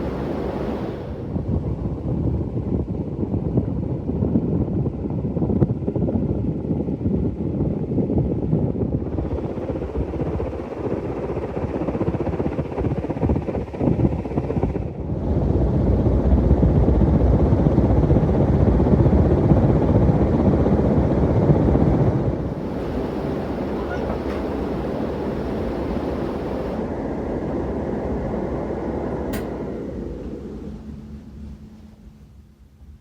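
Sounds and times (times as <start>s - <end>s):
fan airflow buffeting microphone: 0.0s - 33.0s.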